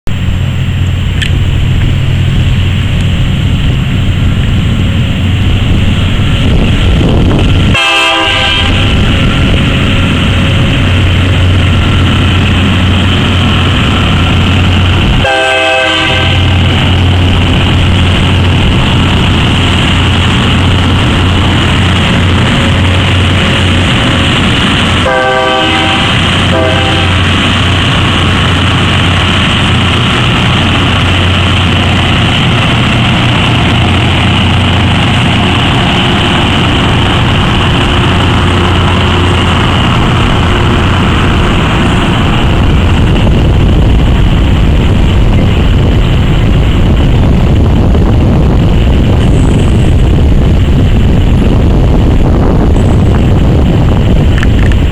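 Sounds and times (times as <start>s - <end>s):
diesel engine hum: 0.0s - 54.9s
train horn blasts: 7.7s - 9.1s, 15.2s - 16.6s, 25.0s - 27.4s
wheels on rails: 16.2s - 54.9s.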